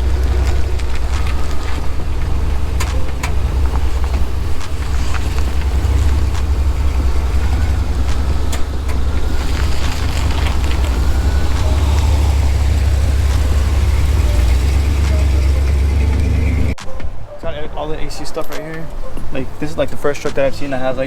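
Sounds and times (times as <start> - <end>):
pickup truck engine running: 0.0 - 16.8.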